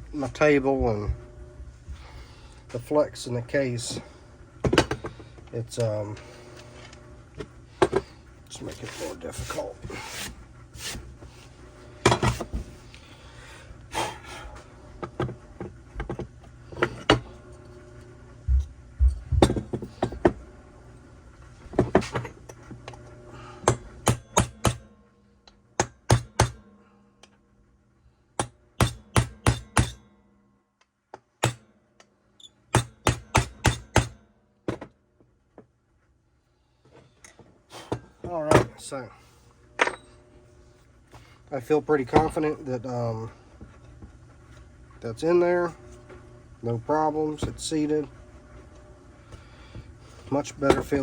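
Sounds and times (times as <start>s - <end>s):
steady hum: 0.0s - 30.6s, 36.3s - 51.0s
hammer strikes on metal: 23.6s - 24.8s, 25.8s - 26.7s, 28.4s - 30.0s, 31.4s - 31.7s, 32.7s - 34.2s.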